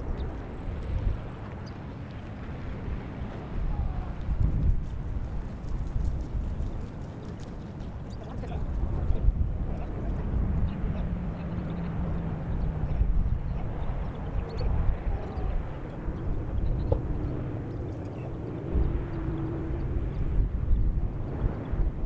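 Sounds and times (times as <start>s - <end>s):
distant engine drone: 5.6s - 22.0s.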